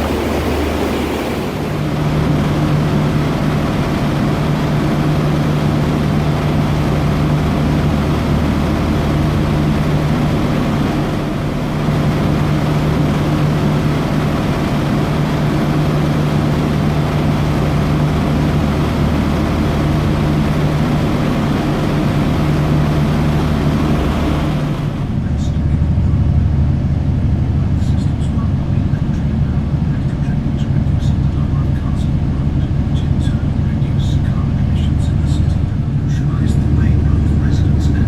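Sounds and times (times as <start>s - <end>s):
ferry engines droning: 0.0s - 2.3s
rush of noise: 0.0s - 2.3s.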